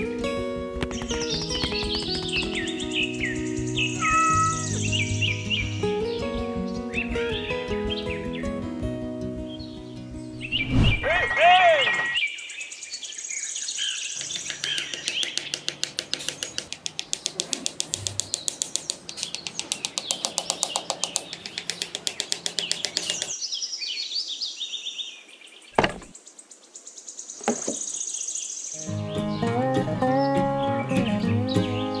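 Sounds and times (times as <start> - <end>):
fast even clicking: 0.8 - 2.9, 14.2 - 23.4
small birds chirping: 0.8 - 8.8, 9.4 - 32.0
sharp knock: 25.8 - 26.1.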